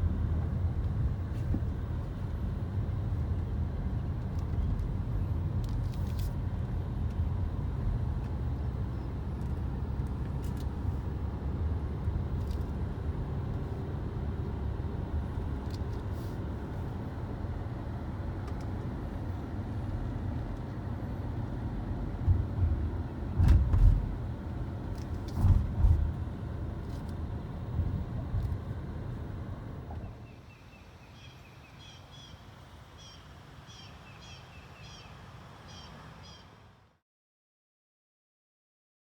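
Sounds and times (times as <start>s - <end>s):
wind rumble on camera: 0.0s - 30.3s
short bird chirps: 30.2s - 32.4s, 33.0s - 36.6s.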